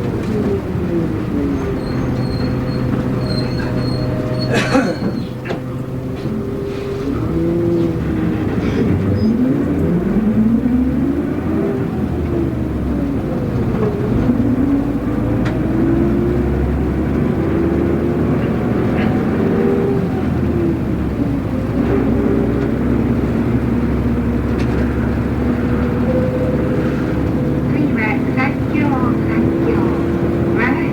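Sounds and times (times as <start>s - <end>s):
bus diesel engine: 0.0s - 30.9s.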